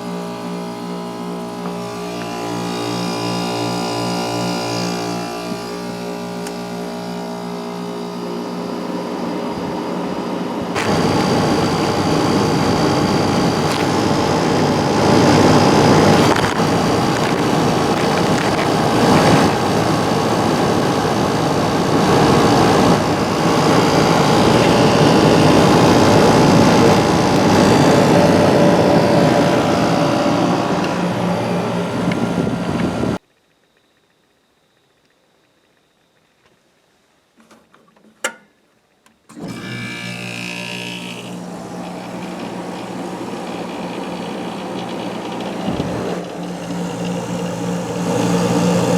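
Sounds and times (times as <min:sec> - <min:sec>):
air conditioner hum: 0:00.0 - 0:33.2
loud rushing air noise: 0:10.6 - 0:33.2.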